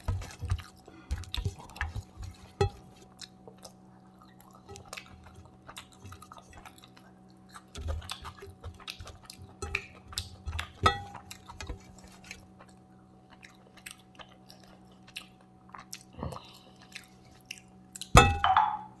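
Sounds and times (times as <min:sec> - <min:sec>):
wet chewing and mouth smacks: 0:00.0 - 0:18.2.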